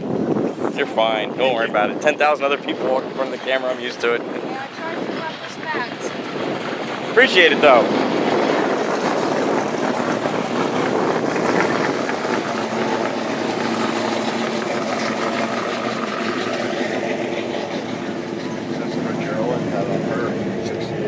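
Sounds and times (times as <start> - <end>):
engine running: 0.0 - 21.0
noisy background: 0.0 - 21.0.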